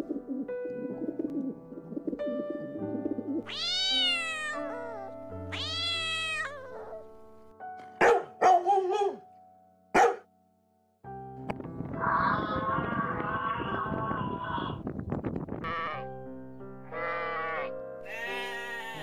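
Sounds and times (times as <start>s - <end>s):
pigeons cooing: 0.0s - 3.5s
background music with held notes: 0.0s - 14.3s, 15.5s - 19.0s
cat meowing: 3.5s - 7.1s, 18.1s - 19.0s
dog barking loudly: 8.0s - 9.2s, 10.0s - 10.2s.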